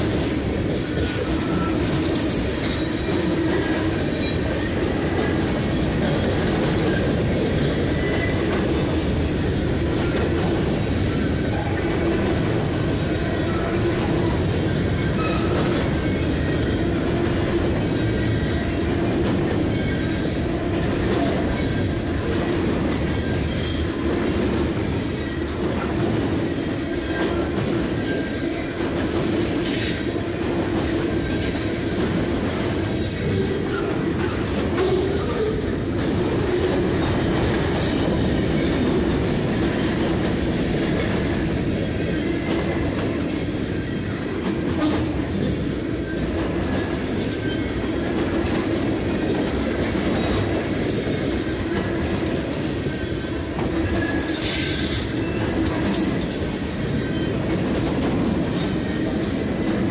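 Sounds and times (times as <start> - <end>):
clickety-clack over rail joints: 0.0 - 59.9
steel wheels rumbling on rail: 0.0 - 59.9
high wheel squeal: 37.4 - 38.8.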